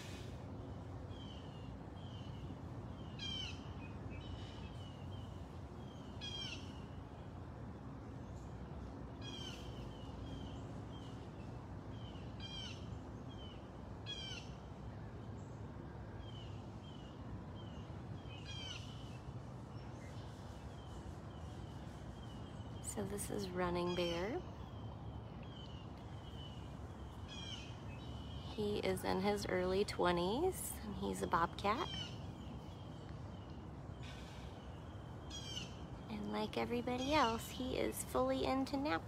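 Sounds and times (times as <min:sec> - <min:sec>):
low background hum: 0:00.0 - 0:39.0
soft bird chirps: 0:16.2 - 0:39.0.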